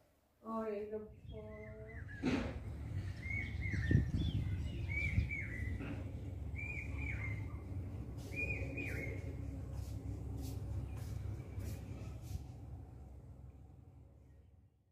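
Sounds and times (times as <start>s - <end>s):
bird chirping: 1.1s - 9.5s.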